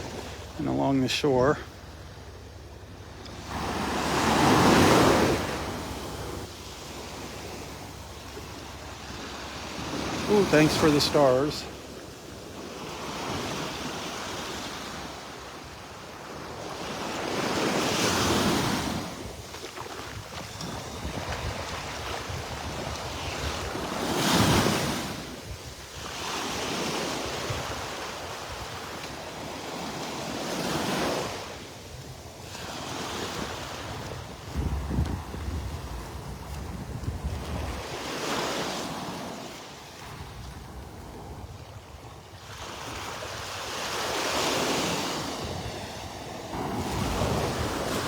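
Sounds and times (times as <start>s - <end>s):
waves breaking on shore: 0.0s - 48.0s
wind buffeting microphone: 19.0s - 26.1s, 33.0s - 38.2s.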